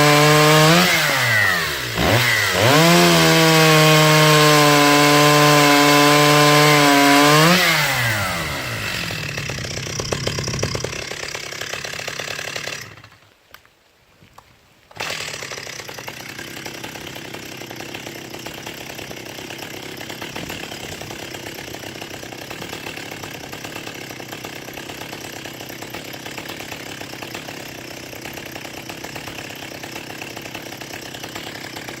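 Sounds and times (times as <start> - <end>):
chainsaw running at high revs: 0.0 - 13.2, 14.9 - 32.0
chainsaw running quietly: 6.5 - 13.2.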